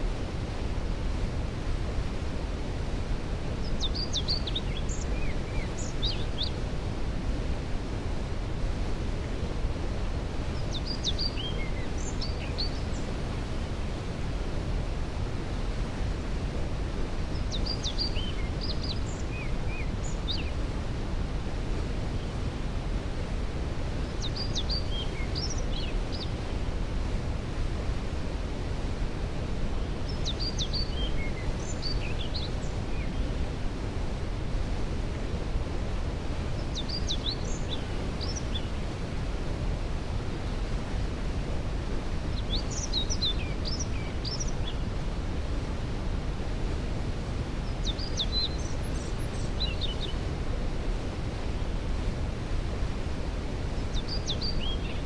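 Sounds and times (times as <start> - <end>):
songbird singing: 3.6 - 6.6, 10.5 - 13.2, 17.3 - 20.6, 24.0 - 26.5, 30.0 - 33.4, 36.5 - 39.0, 42.3 - 44.9, 47.6 - 50.3, 53.8 - 55.0.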